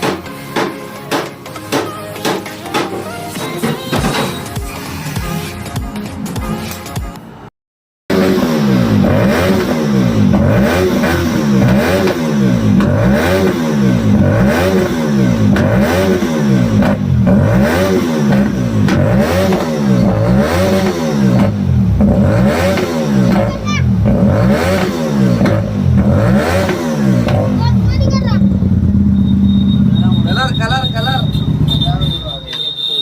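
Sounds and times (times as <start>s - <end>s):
motorcycle engine revving: 8.1s - 32.6s.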